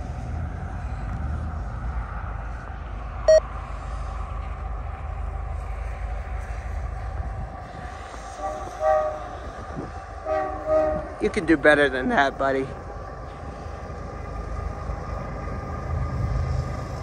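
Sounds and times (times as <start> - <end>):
distant diesel freight train rumble: 0.0 - 17.0.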